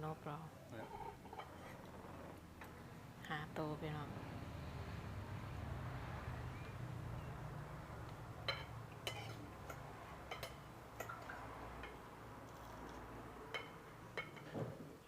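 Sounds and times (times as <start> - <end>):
cutlery and dishes clinking: 8.5 - 14.7.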